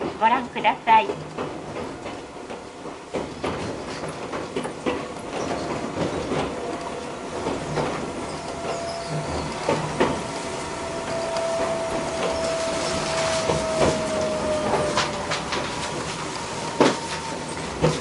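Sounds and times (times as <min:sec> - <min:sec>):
train wheels clacking on rail joints: 0:00.0 - 0:18.0
electric train whine: 0:04.8 - 0:18.0.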